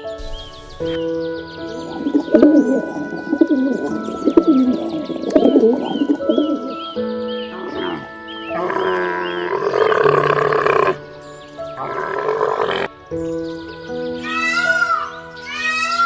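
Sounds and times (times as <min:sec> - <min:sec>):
background music with held notes: 0:00.0 - 0:16.0
bird cooing: 0:01.7 - 0:11.1, 0:11.8 - 0:12.9.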